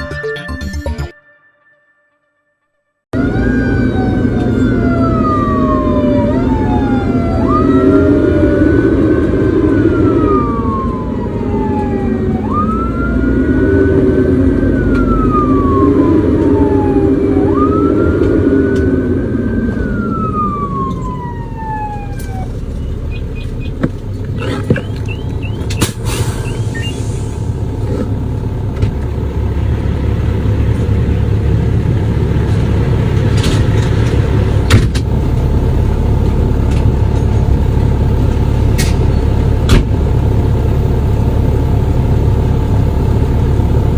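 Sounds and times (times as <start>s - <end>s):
low vehicle rumble: 3.1s - 43.9s
siren wailing: 3.1s - 43.9s.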